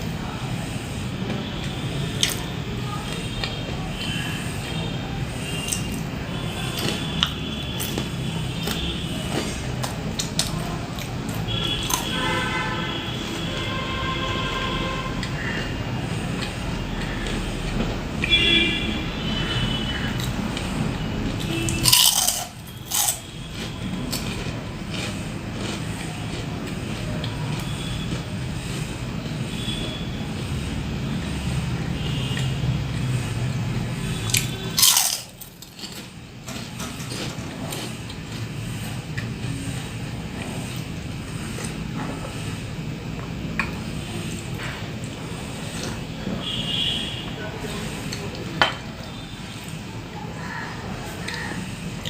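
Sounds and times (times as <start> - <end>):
crunchy snacks being chewed: 2.0 - 4.3, 5.6 - 12.4, 21.2 - 28.5, 34.3 - 36.1, 37.0 - 38.5
crunching bites into fried snack: 21.7 - 25.8, 34.3 - 35.4.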